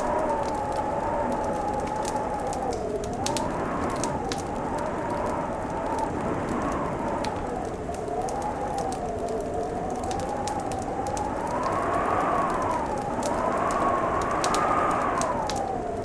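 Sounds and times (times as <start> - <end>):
howling wind: 0.0 - 16.0
wood fire crackling and popping: 0.0 - 16.0.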